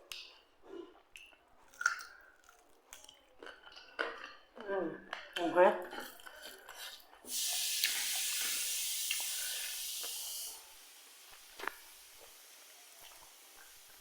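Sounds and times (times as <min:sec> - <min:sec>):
steady hiss: 0:07.3 - 0:14.0.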